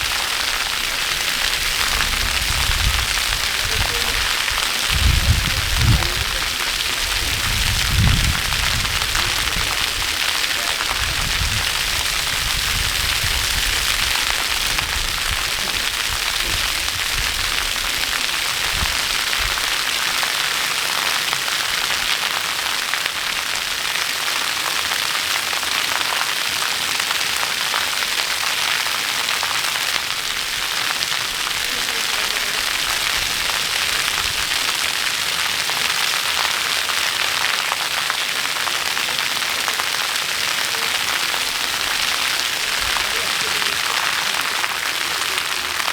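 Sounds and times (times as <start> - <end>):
falling water rushing: 0.0 - 45.9
bumps on microphone: 2.0 - 13.6.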